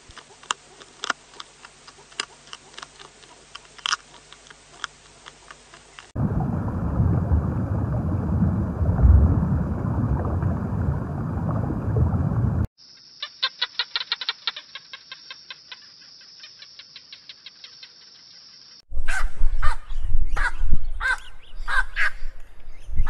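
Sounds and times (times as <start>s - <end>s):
muffled underwater rumble: 6.2s - 12.7s.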